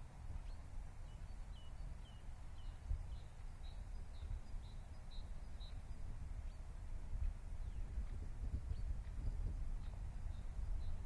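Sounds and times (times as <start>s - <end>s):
bird chirping: 0.4s - 6.6s.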